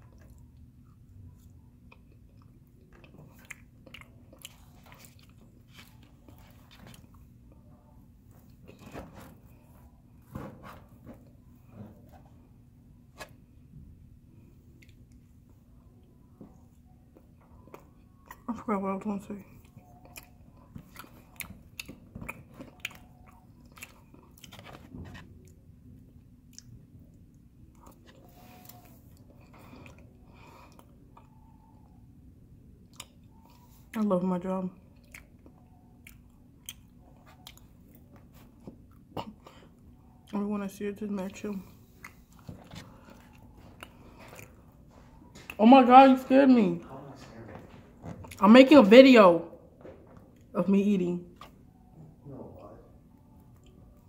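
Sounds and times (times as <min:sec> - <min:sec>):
close-up chewing: 0:00.0 - 0:10.0, 0:19.4 - 0:31.9, 0:32.8 - 0:34.2, 0:34.8 - 0:40.4, 0:41.1 - 0:45.6, 0:47.6 - 0:48.4
faint low hum: 0:00.0 - 0:54.0.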